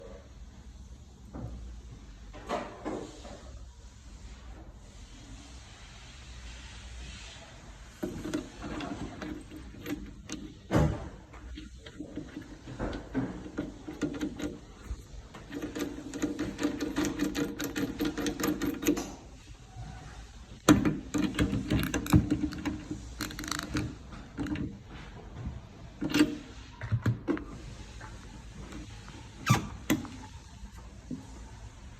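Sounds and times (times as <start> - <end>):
rapid rattling clicks: 11.6 - 19.1.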